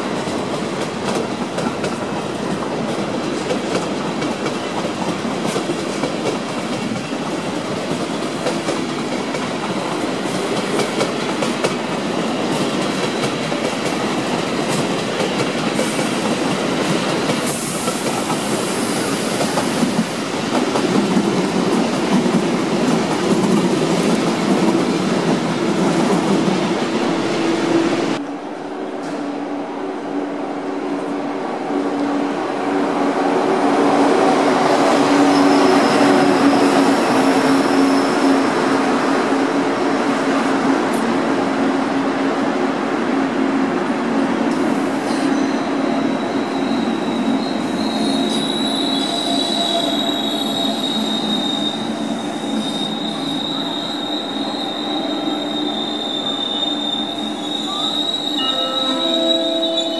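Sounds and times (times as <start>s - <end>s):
electric train rumbling: 0.0s - 59.9s
high brake squeal: 35.2s - 37.0s, 45.0s - 59.9s.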